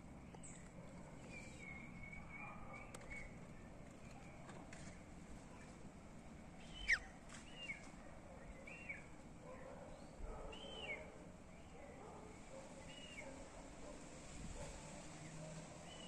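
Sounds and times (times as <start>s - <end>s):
bird calling: 6.6s - 7.8s
bird chirps: 6.6s - 7.8s.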